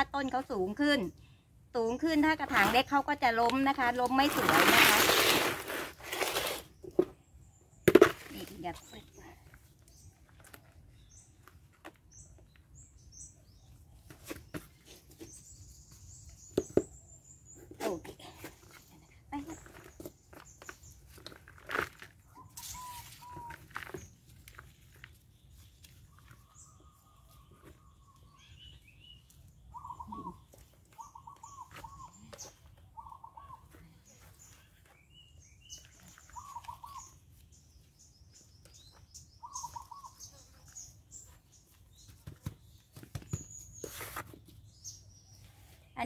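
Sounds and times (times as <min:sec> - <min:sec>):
hands working soil in pot: 0:02.2 - 0:07.2, 0:13.7 - 0:45.0
birds chirping: 0:22.3 - 0:46.0.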